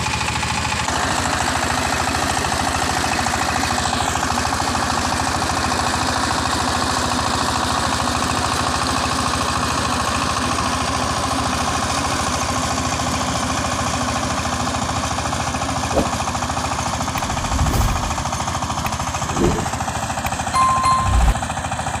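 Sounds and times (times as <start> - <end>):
dull low thumps: 17.2 - 18.4.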